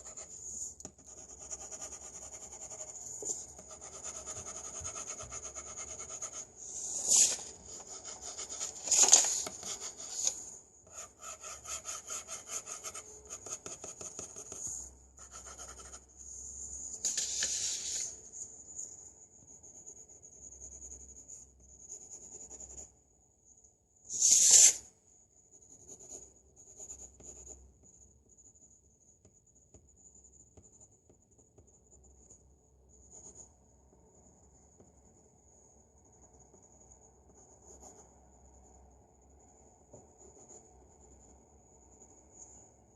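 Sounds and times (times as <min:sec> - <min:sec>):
pencil scratching on paper: 0:00.0 - 0:16.1, 0:25.6 - 0:33.6, 0:39.5 - 0:42.6.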